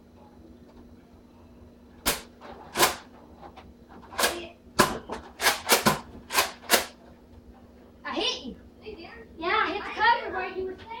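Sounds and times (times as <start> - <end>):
foam dart blasters popping: 2.0 - 3.0.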